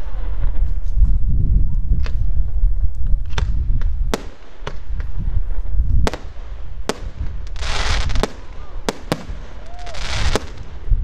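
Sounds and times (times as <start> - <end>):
fireworks bangs: 3.2 - 11.0.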